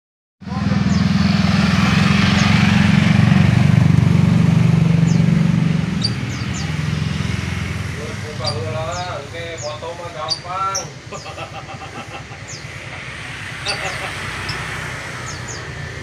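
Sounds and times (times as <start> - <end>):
motor engine running: 0.4 - 10.4
birds chirping: 0.4 - 16.0.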